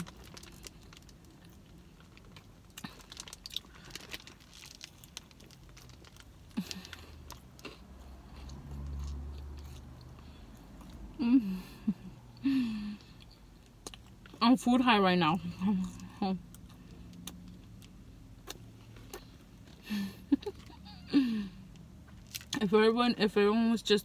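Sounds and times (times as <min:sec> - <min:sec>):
crunchy chewing and biting: 0:00.0 - 0:11.1, 0:16.5 - 0:19.8.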